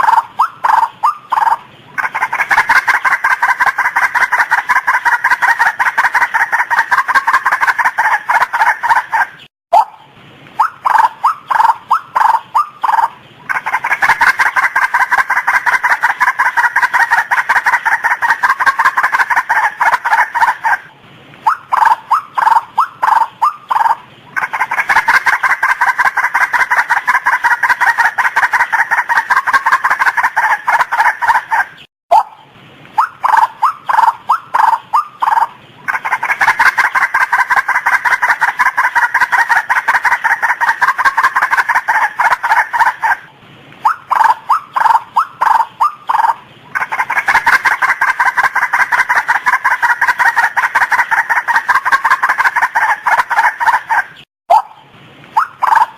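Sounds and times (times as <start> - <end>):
waterhen croaking calls: 0.0 - 55.9.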